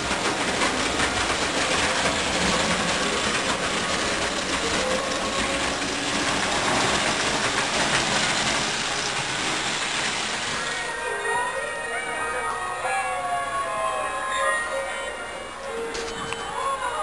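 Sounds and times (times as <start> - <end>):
toy train wheels clattering on rails: 0.0 - 10.6.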